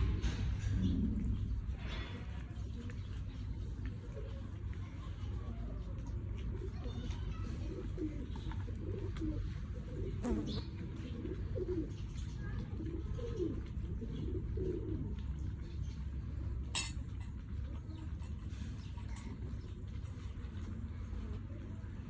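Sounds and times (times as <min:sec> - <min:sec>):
pigeons cooing: 0:00.0 - 0:04.7, 0:06.1 - 0:20.2
steady low rumble: 0:00.0 - 0:06.5.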